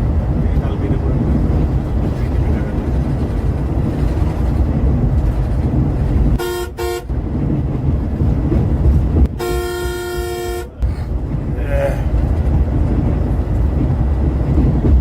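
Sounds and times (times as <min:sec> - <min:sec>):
vehicle rumbling on road: 0:00.0 - 0:15.0
vehicle horn toots: 0:06.4 - 0:07.1, 0:09.3 - 0:10.8.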